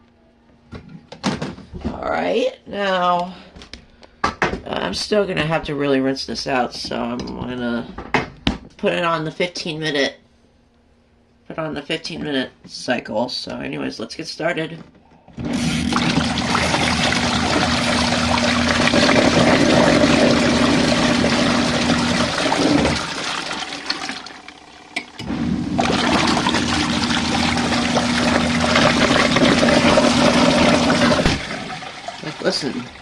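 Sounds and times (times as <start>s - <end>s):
washing machine motor humming: 15.4s - 33.0s
water churning in tub: 15.4s - 33.0s.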